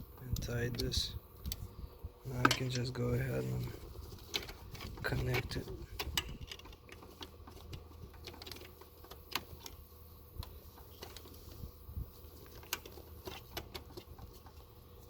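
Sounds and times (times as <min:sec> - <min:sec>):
faint steady hum: 0:00.0 - 0:15.0
hands handling parts clicking: 0:04.1 - 0:09.8, 0:12.4 - 0:14.7.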